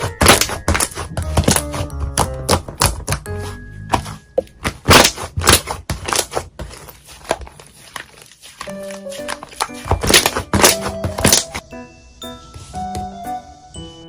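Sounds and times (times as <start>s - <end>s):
background music: 0.0s - 5.2s, 8.7s - 14.0s.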